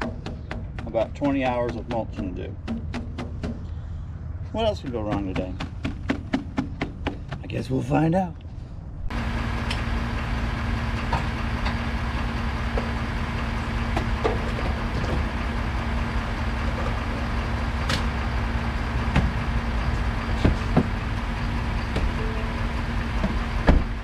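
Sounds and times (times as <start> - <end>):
engine humming: 0.0 - 7.6, 8.4 - 24.0.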